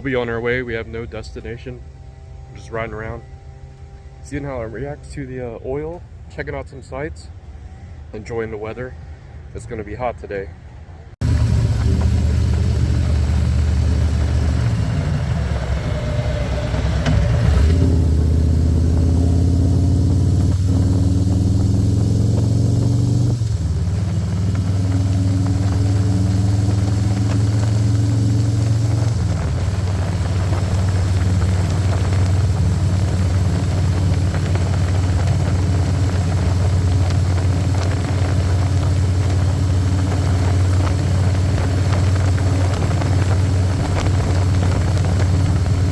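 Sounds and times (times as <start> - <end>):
motorcycle engine running: 0.0 - 6.3, 11.2 - 45.9
wind rush: 11.2 - 45.9.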